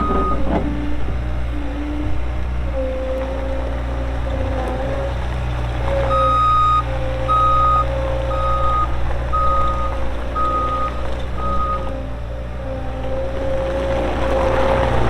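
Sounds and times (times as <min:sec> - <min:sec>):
backup alarm beeping: 0:00.0 - 0:00.6, 0:06.1 - 0:12.0
diesel engine running: 0:00.0 - 0:15.0.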